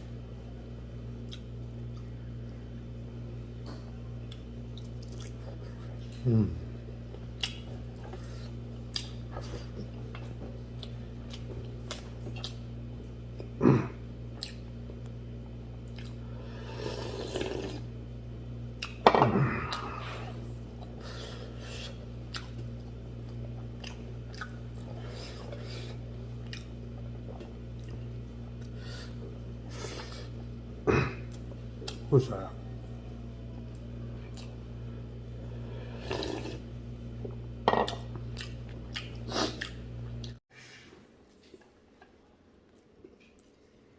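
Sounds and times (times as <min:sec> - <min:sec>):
steady low hum: 0:00.0 - 0:40.4
chewing with wet smacks: 0:01.2 - 0:02.2, 0:03.6 - 0:06.3, 0:07.1 - 0:13.6, 0:14.3 - 0:15.2, 0:15.8 - 0:16.2, 0:18.7 - 0:19.0, 0:21.8 - 0:29.4, 0:31.2 - 0:32.1, 0:33.6 - 0:34.7, 0:37.2 - 0:40.4, 0:41.3 - 0:43.8.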